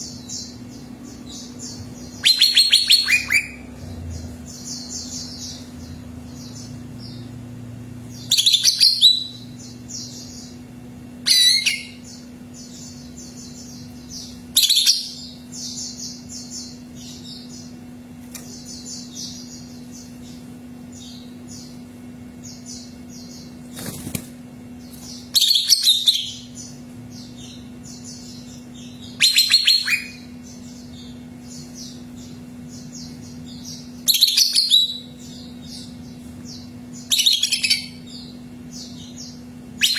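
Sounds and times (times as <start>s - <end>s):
bird singing high twittering: 0.0s - 7.3s, 8.1s - 10.6s, 11.2s - 17.7s, 25.1s - 39.9s
steady low hum: 0.0s - 39.9s.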